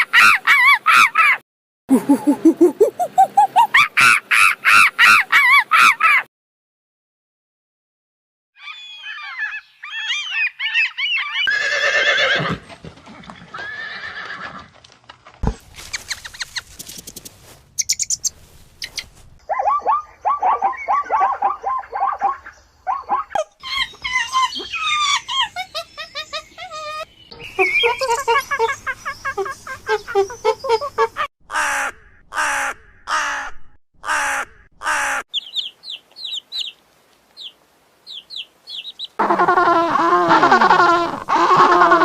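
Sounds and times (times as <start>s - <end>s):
high chirping animal calls: 8.6s - 12.3s, 17.8s - 31.9s, 34.1s - 36.8s, 37.4s - 42.0s
rapid chattering animal calls: 15.8s - 31.3s.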